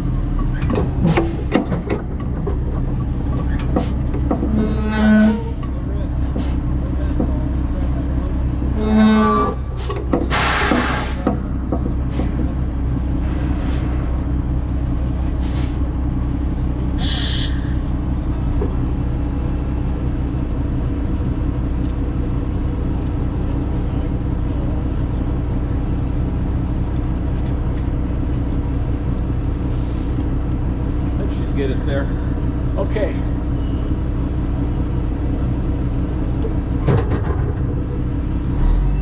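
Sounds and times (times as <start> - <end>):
diesel truck engine running: 0.0 - 39.0
air brake hisses: 10.3 - 11.2, 15.4 - 15.8, 17.0 - 17.8.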